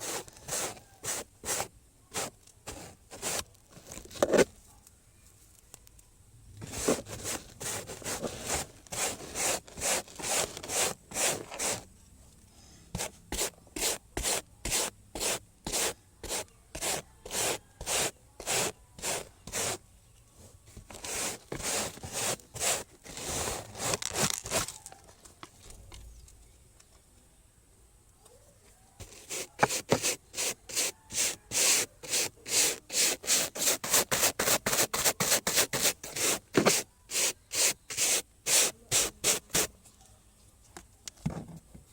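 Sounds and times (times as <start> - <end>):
hand scrubbing strokes: 0.0 - 3.4, 6.7 - 11.8, 12.9 - 19.8, 21.0 - 24.0, 29.0 - 39.7.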